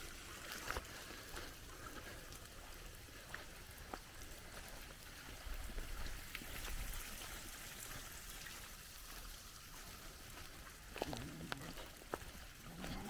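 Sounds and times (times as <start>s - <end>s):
water trickling: 3.8s - 13.0s.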